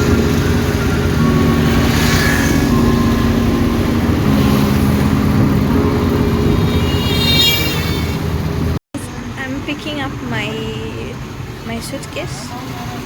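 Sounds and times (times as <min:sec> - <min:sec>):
high squeal: 0:00.0 - 0:08.8
vehicle engine running: 0:00.0 - 0:13.0.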